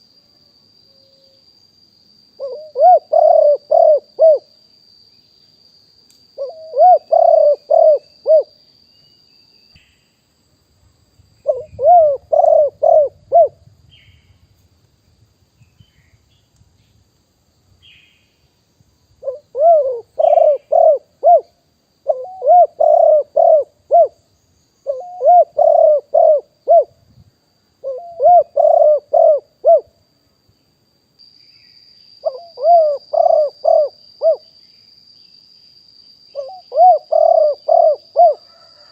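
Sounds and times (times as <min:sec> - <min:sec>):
dove cooing: 0:02.4 - 0:04.5, 0:06.4 - 0:08.5, 0:11.4 - 0:13.6, 0:19.2 - 0:24.2, 0:24.8 - 0:27.0, 0:27.8 - 0:29.9, 0:32.2 - 0:34.4, 0:36.4 - 0:38.9.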